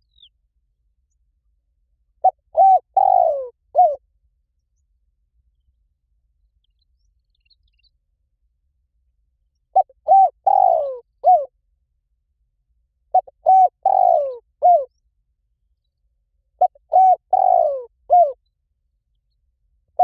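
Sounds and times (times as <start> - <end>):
dove cooing: 2.2 - 4.0, 9.7 - 11.5, 13.1 - 14.9, 16.6 - 18.4.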